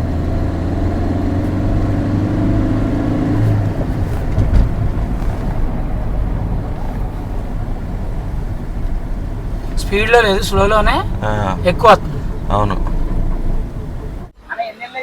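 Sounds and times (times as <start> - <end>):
car brakes droning: 0.0 - 14.3
thump: 3.7 - 5.6.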